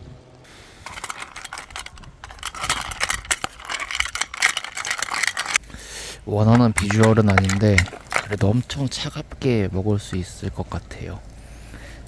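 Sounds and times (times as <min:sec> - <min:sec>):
rustling: 0:00.8 - 0:05.7, 0:06.3 - 0:09.1.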